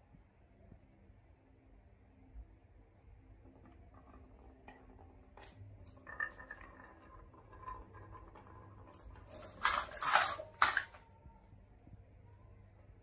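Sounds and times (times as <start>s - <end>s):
marbles clattering on a marble run: 3.4s - 11.0s.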